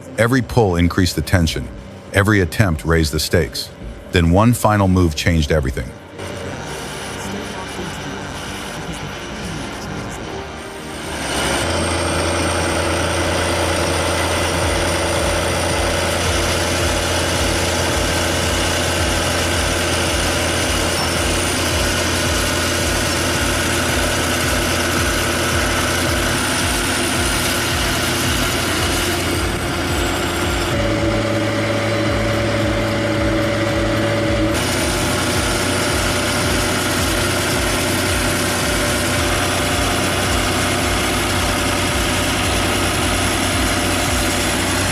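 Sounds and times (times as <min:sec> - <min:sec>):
heavy tractor engine running: 0:00.0 - 0:44.9.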